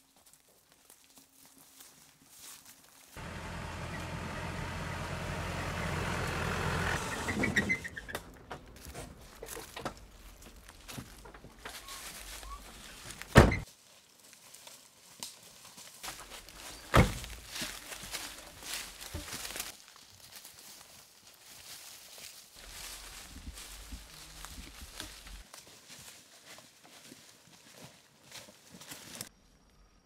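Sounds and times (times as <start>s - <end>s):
brakes squealing: 3.2s - 13.6s
pickup truck engine: 3.2s - 13.6s.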